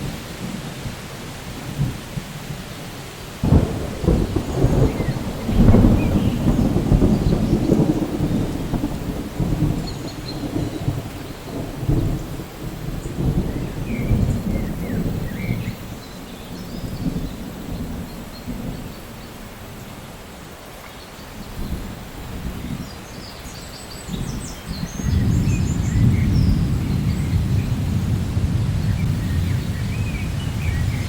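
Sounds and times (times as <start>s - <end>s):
steady rain: 0.0s - 31.0s
thunder crack and rumbles: 3.4s - 19.3s, 24.1s - 31.0s.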